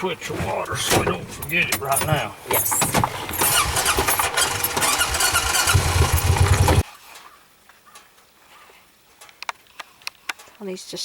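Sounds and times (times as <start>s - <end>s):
farm vehicle engine running: 0.0s - 6.8s.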